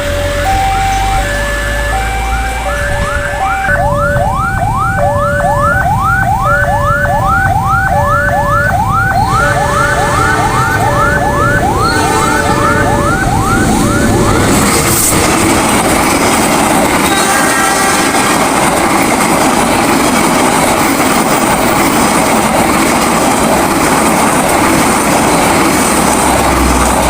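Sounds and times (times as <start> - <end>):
two-note alternating tone: 0.0 - 14.7
electronic whooping alarm: 0.0 - 15.1
low rumble of heavy vehicles: 0.0 - 17.0
train noise: 0.0 - 27.0.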